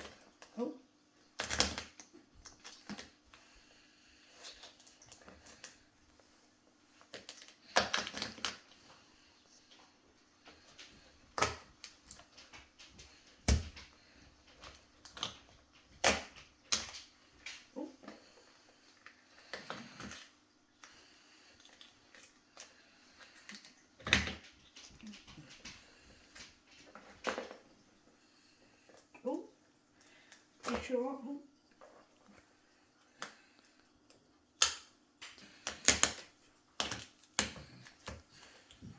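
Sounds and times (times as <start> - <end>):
shell cracking: 33.2 - 37.7.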